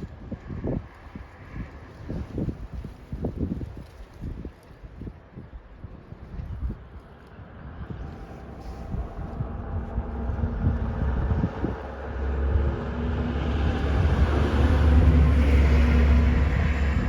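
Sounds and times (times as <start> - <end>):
engine hum approaching: 7.1 - 17.0
low rumble: 7.4 - 17.0.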